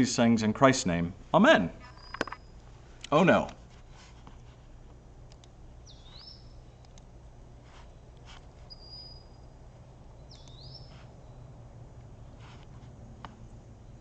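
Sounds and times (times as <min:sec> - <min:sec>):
steady low hum: 0:00.0 - 0:14.0
swooping whistled bird calls: 0:01.9 - 0:02.6, 0:05.8 - 0:06.8, 0:08.7 - 0:09.6, 0:10.2 - 0:11.5
faint clicks: 0:05.3 - 0:05.6, 0:06.8 - 0:07.1.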